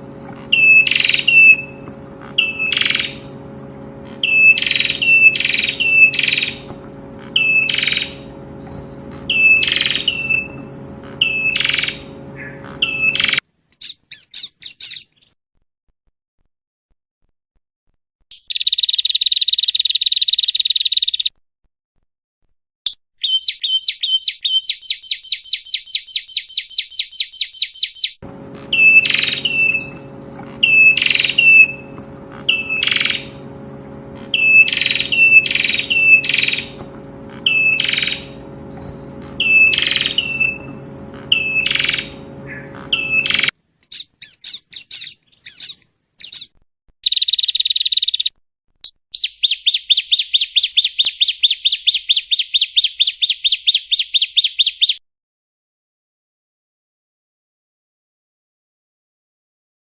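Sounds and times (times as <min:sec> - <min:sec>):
bird trilling and chirping: 0:00.0 - 0:01.8, 0:02.4 - 0:03.4, 0:04.1 - 0:15.4, 0:18.3 - 0:21.3, 0:23.2 - 0:33.6, 0:34.2 - 0:55.0
steady low hum: 0:00.0 - 0:13.4, 0:28.2 - 0:43.5.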